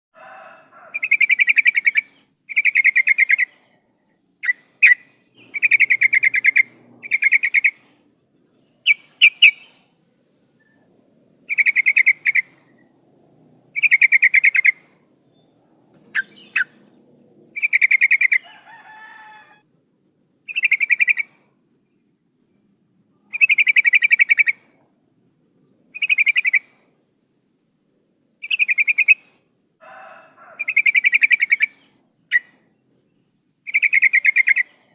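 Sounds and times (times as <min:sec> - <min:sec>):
bird chattering call: 0:00.9 - 0:03.6, 0:04.4 - 0:08.0, 0:08.8 - 0:09.8, 0:10.6 - 0:15.0, 0:16.1 - 0:18.4, 0:20.5 - 0:21.3, 0:23.3 - 0:24.6, 0:30.5 - 0:32.5, 0:33.7 - 0:34.8.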